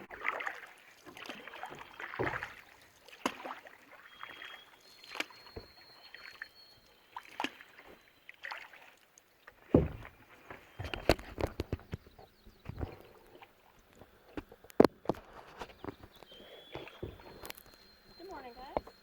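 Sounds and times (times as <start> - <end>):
paddle splashing in water: 0.0 - 19.0
sharp knocks on canoe: 1.7 - 2.6, 9.6 - 13.1, 14.4 - 17.6.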